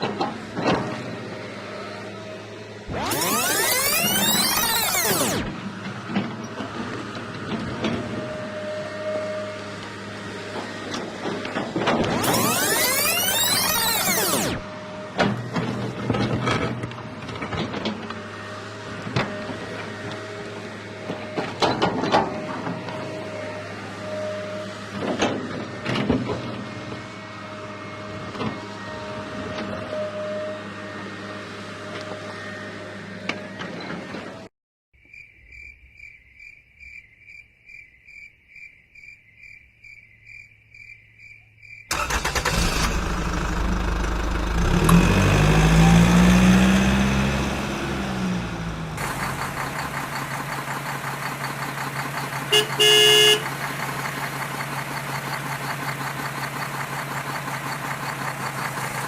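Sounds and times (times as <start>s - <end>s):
truck engine revving and idling: 0.0s - 34.5s, 41.9s - 59.0s
reversing alarm beeps: 3.0s - 5.4s, 12.2s - 14.6s
truck horn blast: 52.5s - 53.6s.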